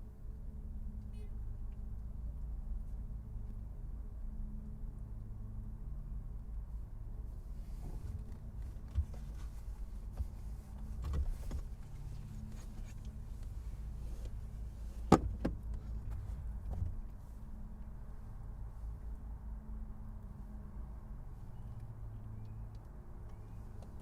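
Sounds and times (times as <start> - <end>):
car engine humming: 7.4 - 24.0.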